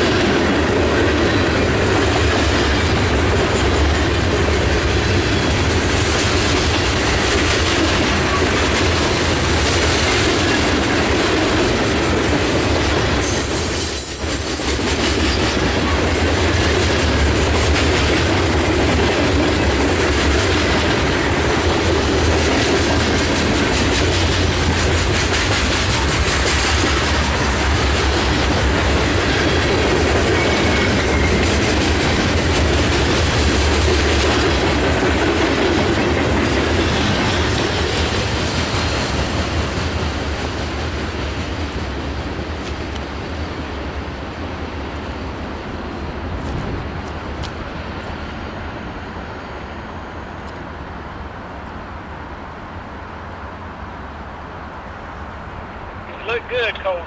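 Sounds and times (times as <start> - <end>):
wheels clacking over rail joints: 0.0 - 43.4
freight train wheels rumbling: 0.0 - 57.0.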